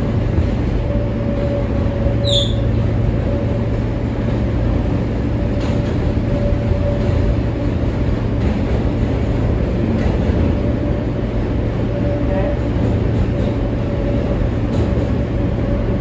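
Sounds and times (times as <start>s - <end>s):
subway wheels rumbling on rails: 0.0s - 16.0s
high wheel squeal: 2.2s - 2.7s.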